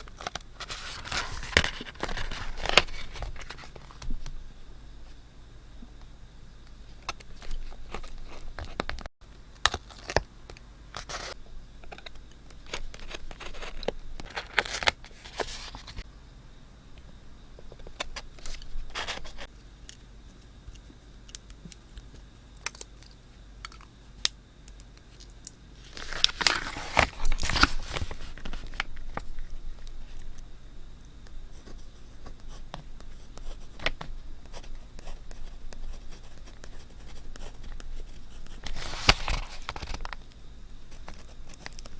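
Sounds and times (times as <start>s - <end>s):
paper rustling and scraping: 0.0s - 4.1s, 12.7s - 16.0s, 18.4s - 19.5s, 25.8s - 29.2s, 38.5s - 40.2s.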